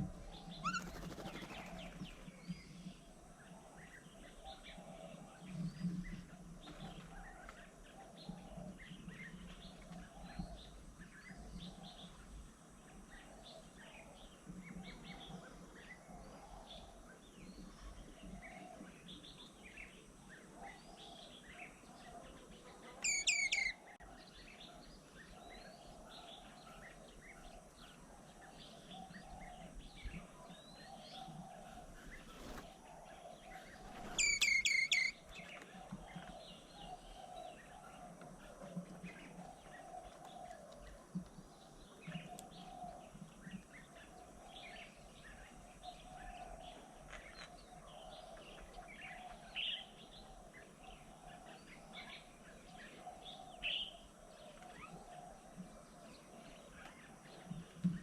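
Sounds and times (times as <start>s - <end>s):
wild birds chirping: 0.0s - 58.0s
loud bird call of repeated notes: 23.0s - 23.8s, 34.1s - 35.2s.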